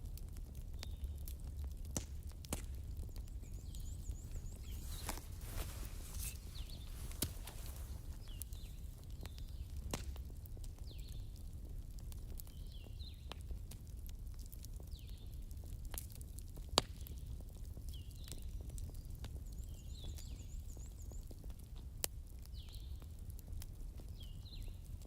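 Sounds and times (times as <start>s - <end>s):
campfire crackling and popping: 0.0s - 25.0s
bird chirping: 3.1s - 8.8s.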